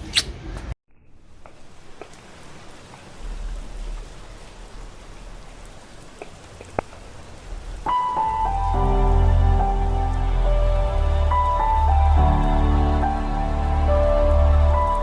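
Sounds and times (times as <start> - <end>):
raindrops ticking: 1.0 - 15.0
steady rain: 1.0 - 15.0
music: 7.8 - 15.0.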